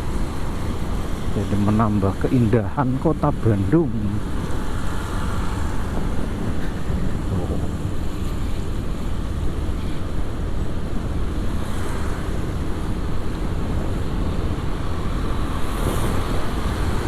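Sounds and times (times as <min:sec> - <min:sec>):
wind rush on microphone: 0:00.0 - 0:17.0.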